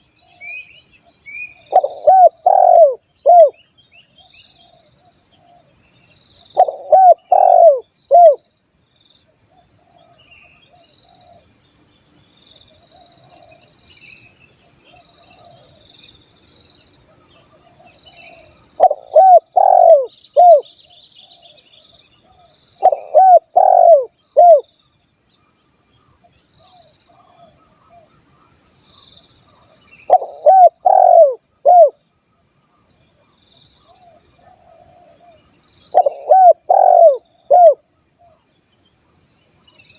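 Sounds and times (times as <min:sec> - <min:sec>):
dove cooing: 0:01.7 - 0:03.6, 0:06.6 - 0:08.4, 0:17.6 - 0:20.7, 0:22.3 - 0:24.7, 0:30.1 - 0:32.0, 0:34.0 - 0:37.8.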